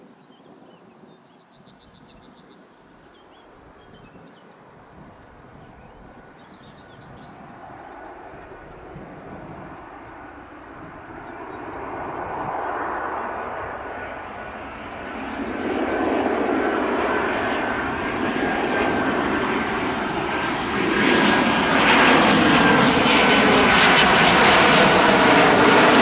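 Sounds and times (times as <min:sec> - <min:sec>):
jet engines on approach: 0:04.6 - 0:26.0
bird chirping: 0:14.8 - 0:17.5.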